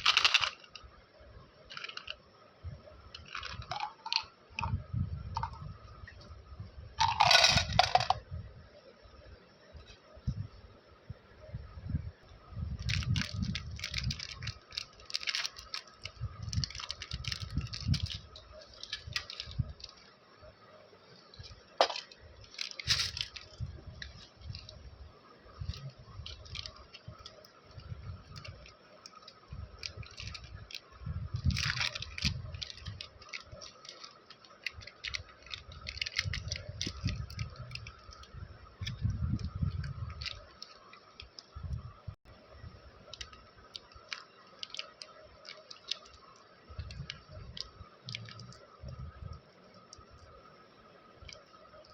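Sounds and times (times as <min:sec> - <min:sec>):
candy packaging crinkling: 0:00.0 - 0:00.7, 0:01.7 - 0:02.2, 0:03.2 - 0:04.7, 0:07.0 - 0:08.2, 0:12.8 - 0:20.1, 0:21.8 - 0:24.8, 0:25.7 - 0:30.8, 0:31.4 - 0:39.0, 0:40.1 - 0:41.5, 0:43.1 - 0:48.6.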